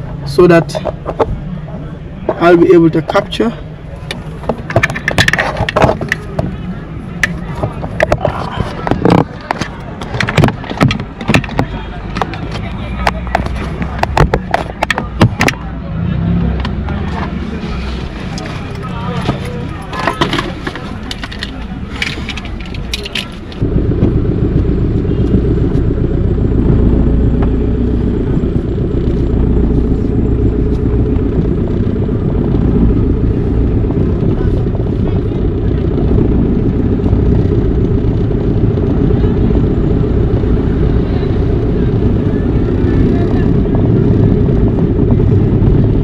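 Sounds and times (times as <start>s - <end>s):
vehicle road noise: 0.0s - 46.0s
wind rumble on microphone: 16.4s - 46.0s.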